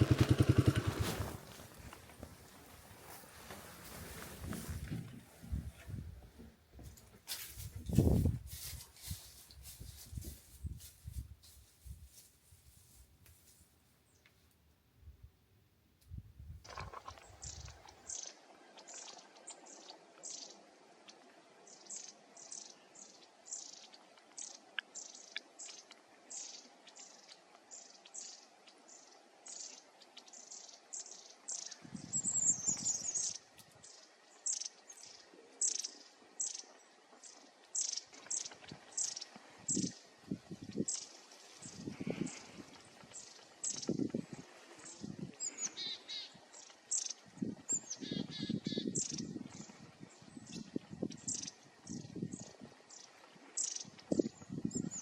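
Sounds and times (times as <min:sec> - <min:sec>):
small bird chirping: 0:16.7 - 0:20.6, 0:21.7 - 0:44.2, 0:44.8 - 0:55.0.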